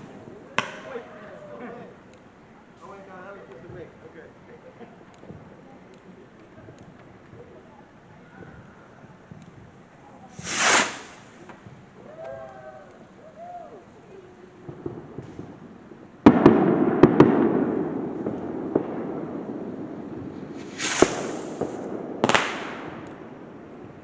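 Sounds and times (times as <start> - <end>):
firework crackles: 0.0 - 24.0
hissing firework bursts: 6.6 - 12.2, 13.8 - 24.0
firework bang: 10.3 - 11.8, 14.6 - 24.0.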